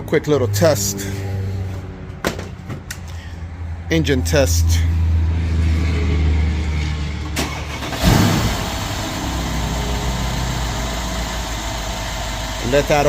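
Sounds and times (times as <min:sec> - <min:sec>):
car engine starting and idling: 0:00.0 - 0:13.0.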